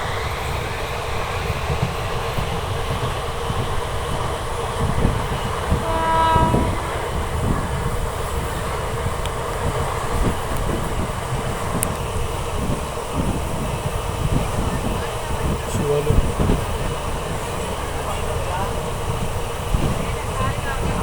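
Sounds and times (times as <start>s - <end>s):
train rumbling on track: 0.0s - 21.0s
train horn blast: 4.8s - 9.1s.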